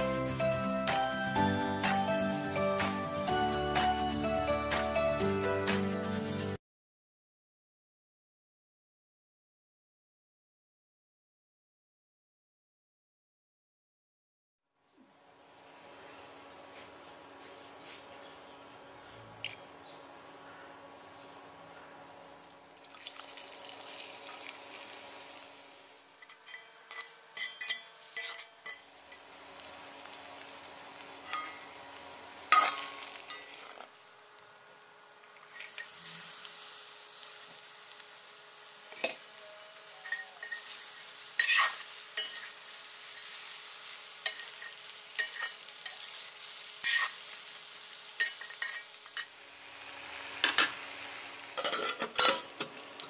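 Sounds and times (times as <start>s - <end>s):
vegetables sizzling in oil: 22.6s - 53.0s
metal spatula scraping pan: 26.2s - 29.2s, 35.5s - 36.3s, 40.0s - 42.6s, 44.2s - 46.2s, 46.8s - 47.3s, 48.2s - 49.3s.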